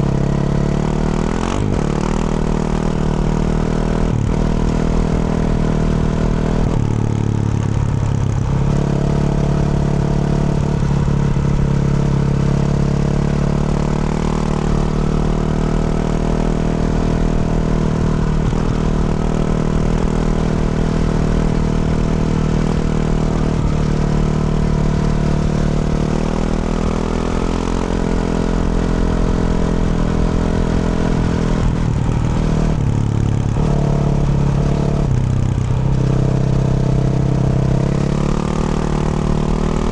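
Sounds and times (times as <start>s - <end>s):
motorcycle engine under throttle: 0.0s - 39.9s.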